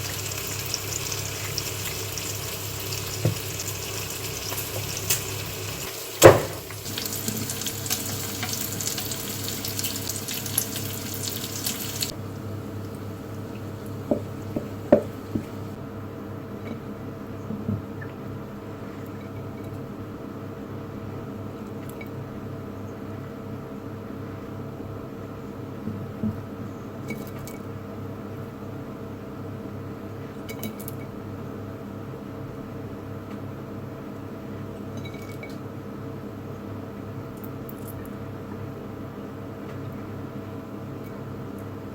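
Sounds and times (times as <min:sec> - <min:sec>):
tap water running into sink: 0:00.0 - 0:12.2, 0:13.5 - 0:15.8
steady appliance hum: 0:00.0 - 0:41.9
knocks: 0:06.2 - 0:06.7, 0:14.1 - 0:15.6.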